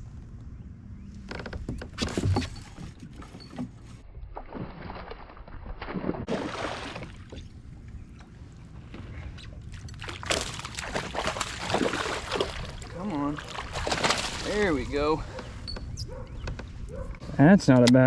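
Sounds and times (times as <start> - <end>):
water splashing around kayak: 2.0 - 15.6.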